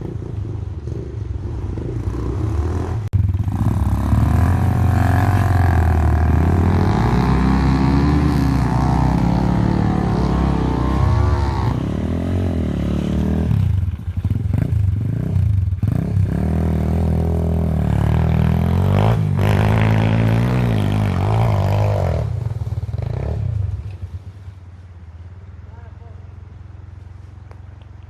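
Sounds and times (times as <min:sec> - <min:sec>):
dirt bike engine revving: 0:00.0 - 0:23.8.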